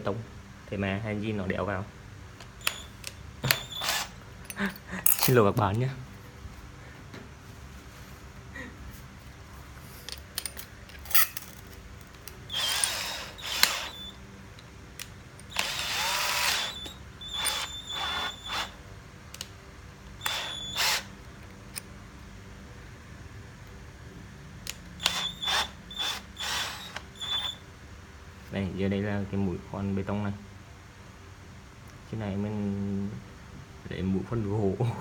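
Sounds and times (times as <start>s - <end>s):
cordless drill whine: 2.6s - 4.6s, 12.5s - 14.2s, 15.5s - 18.8s, 20.2s - 21.1s, 25.0s - 27.6s.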